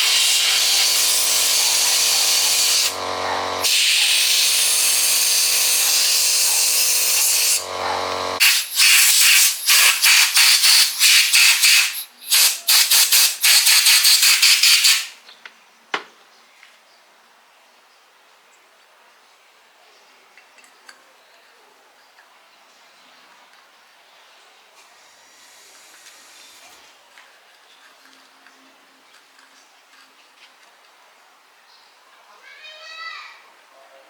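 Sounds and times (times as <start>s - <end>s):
rushing air hiss: 0.0s - 3.0s, 3.6s - 7.6s, 8.4s - 15.2s
short hissing bursts: 0.0s - 3.0s, 3.6s - 7.6s, 8.4s - 15.2s
machine humming: 0.0s - 10.0s.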